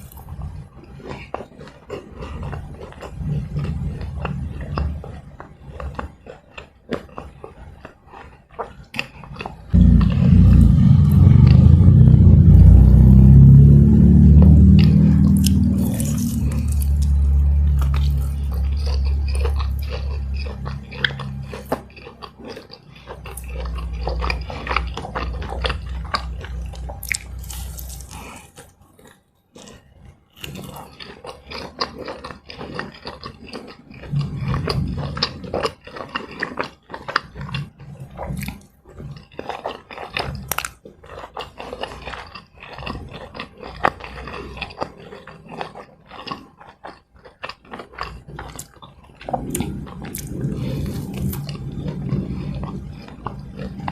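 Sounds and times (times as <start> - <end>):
crunchy chewing of snacks: 0.0 - 53.9
deep low rumble: 9.8 - 22.2, 23.3 - 28.3, 34.1 - 35.7, 49.2 - 53.9
wet mouth clicks: 14.8 - 24.1, 48.0 - 53.9.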